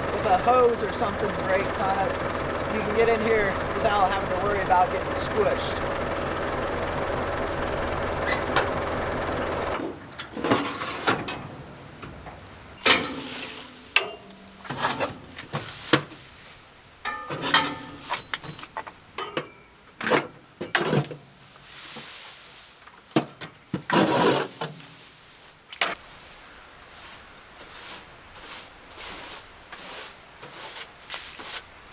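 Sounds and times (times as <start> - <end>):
tractor engine running: 0.0 - 10.4
light metal clanks: 12.8 - 16.1, 17.0 - 21.2
hay scraping and rustling: 21.4 - 22.8, 24.0 - 31.7.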